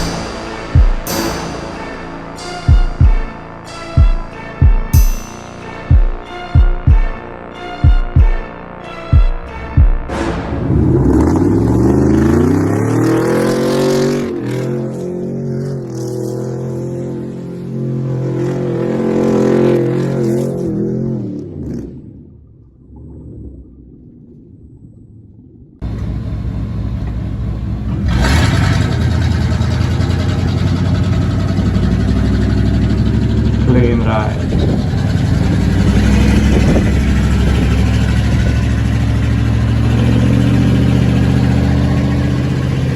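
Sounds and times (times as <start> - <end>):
pickup truck engine revving: 10.4 - 17.2, 25.8 - 42.9.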